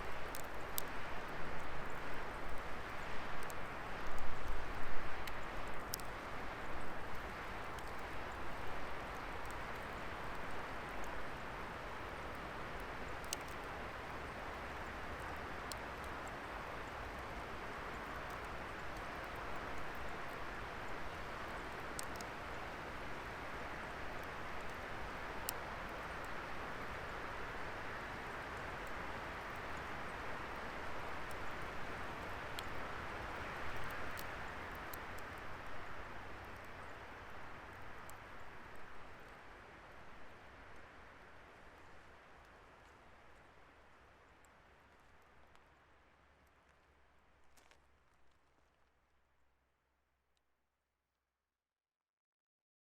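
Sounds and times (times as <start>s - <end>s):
burning wood crackling pops: 21.5s - 22.3s.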